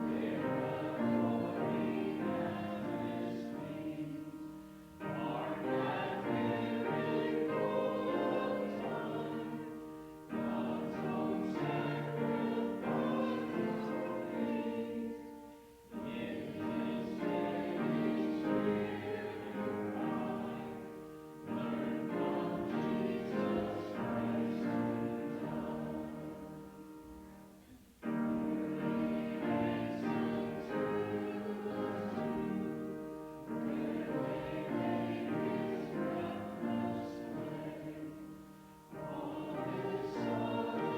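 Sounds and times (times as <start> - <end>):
congregation singing a hymn: 0.0 - 40.9.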